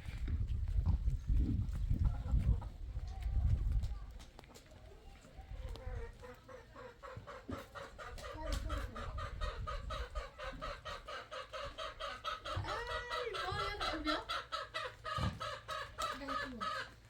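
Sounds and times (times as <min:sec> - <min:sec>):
chickens clucking: 0:00.1 - 0:17.0.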